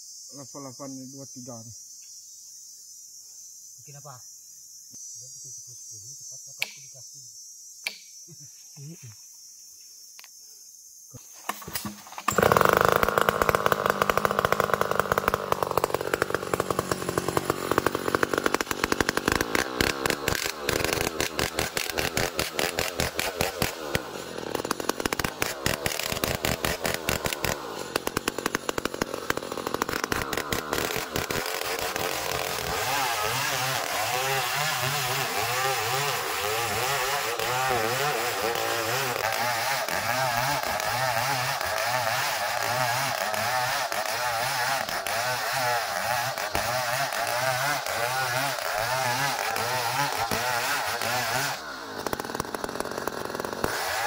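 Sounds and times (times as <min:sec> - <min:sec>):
sawmill saw cutting log: 0:11.6 - 0:54.0.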